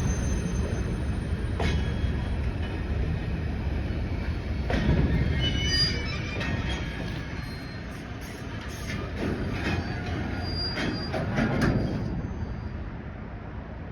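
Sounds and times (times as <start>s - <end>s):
high wheel squeal: 0.0s - 2.2s, 5.1s - 12.8s
train rumbling along track: 0.0s - 13.9s.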